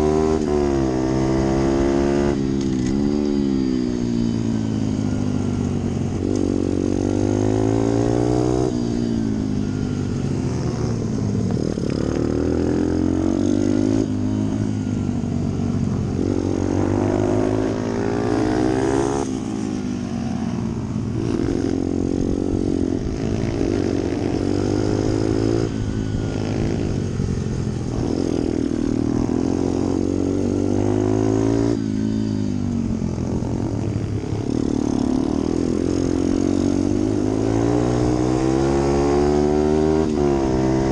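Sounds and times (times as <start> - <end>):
motorbike engine revving hard: 0.0 - 4.4, 6.2 - 9.2, 21.0 - 32.2, 33.3 - 40.9.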